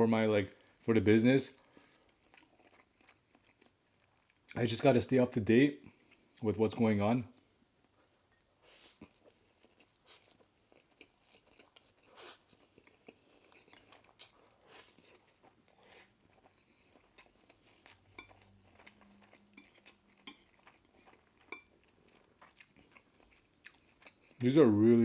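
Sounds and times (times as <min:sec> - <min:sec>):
person chewing: 0:01.5 - 0:04.6, 0:07.4 - 0:24.5.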